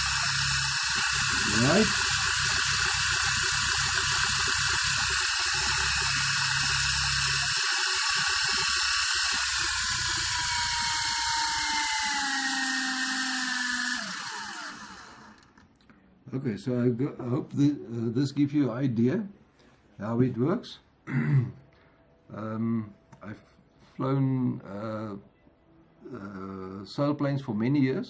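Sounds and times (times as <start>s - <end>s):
toy helicopter rotors whirring: 0.0s - 15.6s.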